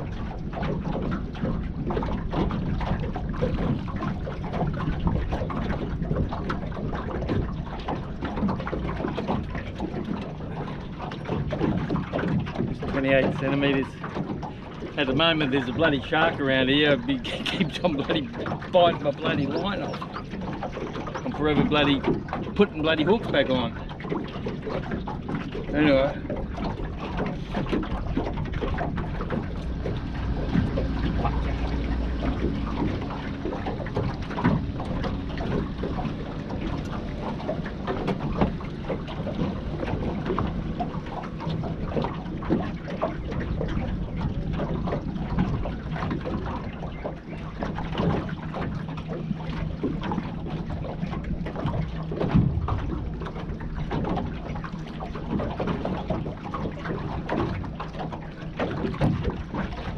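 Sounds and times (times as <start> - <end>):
wind buffeting microphone: 0.0 - 59.9
low steady hum: 12.6 - 58.6.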